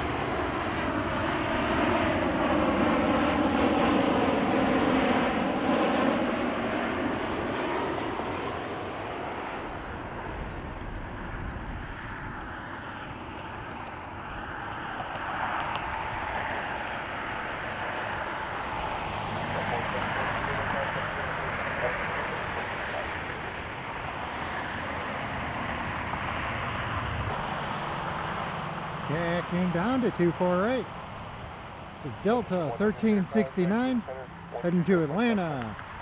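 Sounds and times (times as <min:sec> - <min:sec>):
jet landing and passing by: 0:00.0 - 0:36.0.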